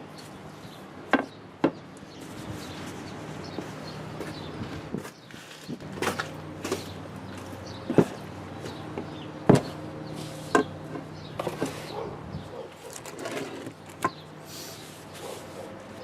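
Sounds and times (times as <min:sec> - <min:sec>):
scraping and rubbing: 0:11.4 - 0:15.8.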